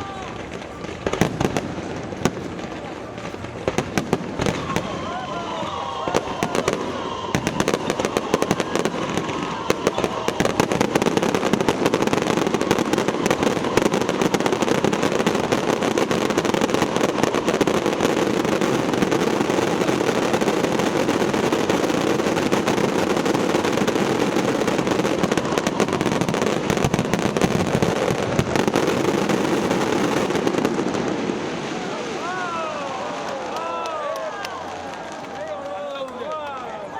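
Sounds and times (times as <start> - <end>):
firework whistling: 0.0 - 33.2
fireworks crackling bursts: 0.0 - 36.9.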